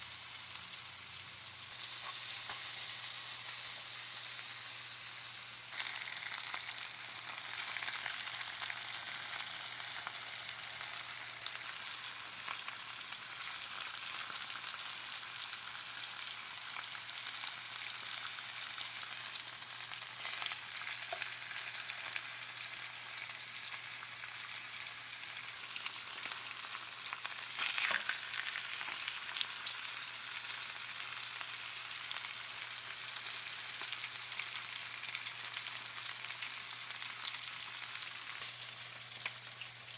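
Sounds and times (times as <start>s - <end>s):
chicken sizzling in a pan: 0.0s - 39.9s.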